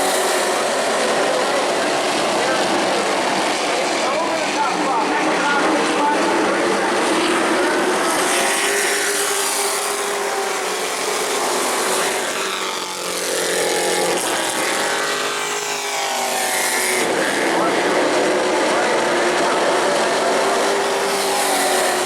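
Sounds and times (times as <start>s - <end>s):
race truck engines racing: 0.0s - 22.0s.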